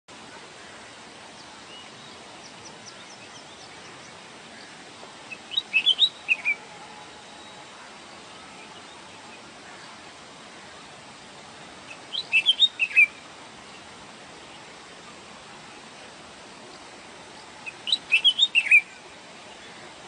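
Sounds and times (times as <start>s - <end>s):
background hiss: 0.1s - 20.0s
bird singing quick notes: 5.3s - 6.6s, 11.9s - 13.2s, 17.7s - 18.9s.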